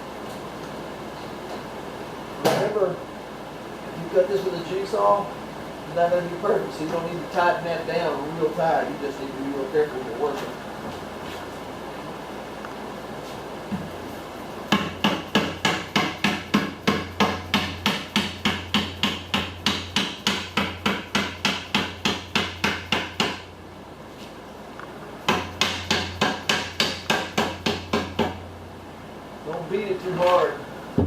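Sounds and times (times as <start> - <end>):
hammer beating aluminium: 14.7 - 23.4, 25.3 - 28.4.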